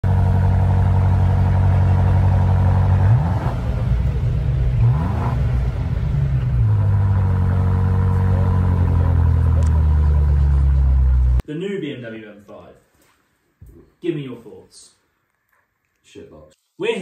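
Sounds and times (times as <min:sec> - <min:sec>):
car engine idling and revving: 0:00.0 - 0:11.4.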